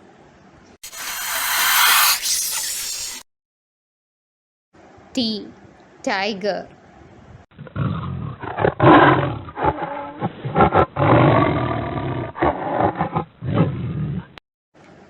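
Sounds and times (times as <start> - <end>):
tiger roaring: 7.7 - 14.3.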